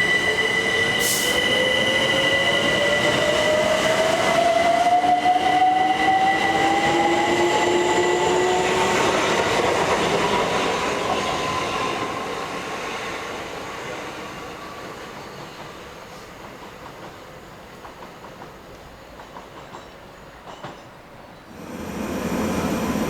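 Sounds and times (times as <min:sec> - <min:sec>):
train motor whine: 0:21.5 - 0:23.0
wheel and rail noise: 0:21.5 - 0:23.0.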